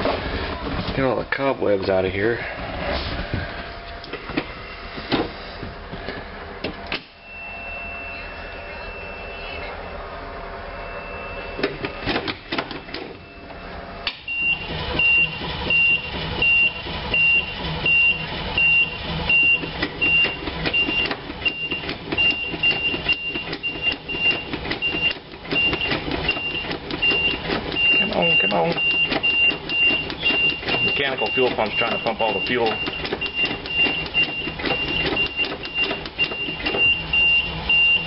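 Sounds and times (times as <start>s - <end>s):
high warning beeper: 7.2s - 11.8s, 12.8s - 38.0s
starter cranking engine: 14.2s - 38.0s.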